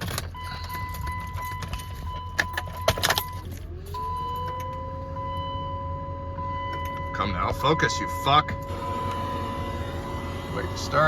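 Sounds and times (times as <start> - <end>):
electronic warning tone: 0.4 - 11.0
rising whine: 3.5 - 11.0
low hum: 8.1 - 11.0.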